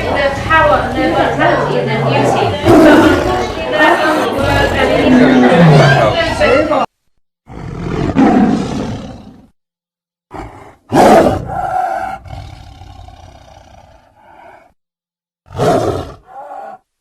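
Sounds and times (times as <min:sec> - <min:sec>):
tiger roaring: 0:00.0 - 0:06.3, 0:07.5 - 0:09.5, 0:10.3 - 0:14.7, 0:15.5 - 0:16.8
tiger grunt: 0:02.1 - 0:06.2, 0:10.3 - 0:14.7, 0:15.5 - 0:16.8.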